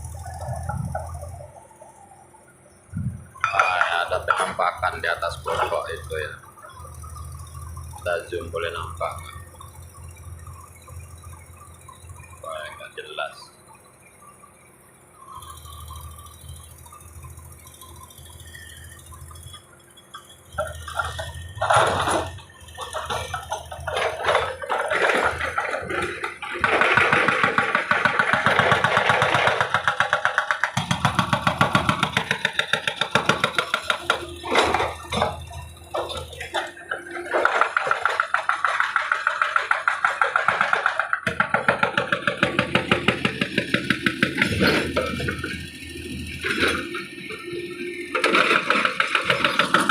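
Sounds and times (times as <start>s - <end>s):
excavator diesel engine: 0.0s - 49.9s
fast even pounding: 20.5s - 45.8s.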